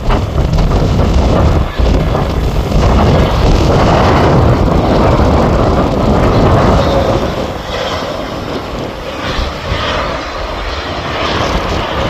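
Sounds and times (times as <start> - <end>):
airliner engine and wind rumble: 0.0 - 12.0.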